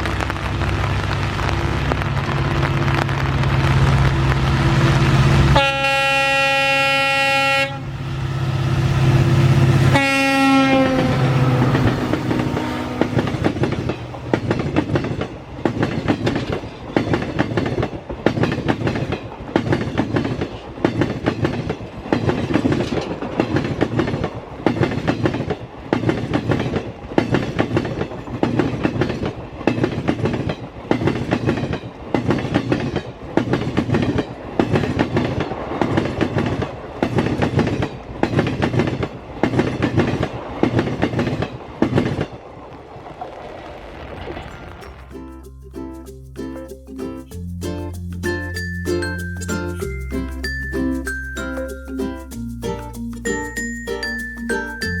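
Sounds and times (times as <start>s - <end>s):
diesel locomotive engine: 0.0s - 55.0s
train horn blasts: 5.5s - 8.0s, 9.8s - 13.4s
wheels clattering over rail joints: 6.4s - 46.0s.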